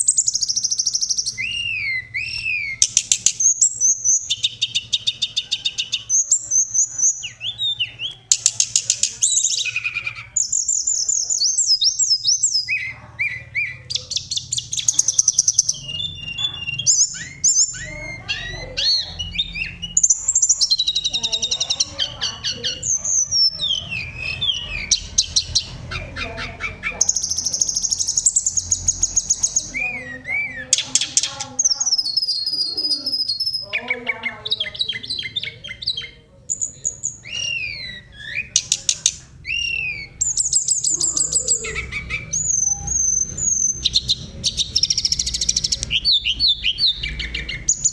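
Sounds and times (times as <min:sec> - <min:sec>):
songbird singing trills and whistles: 0:00.0 - 0:47.9.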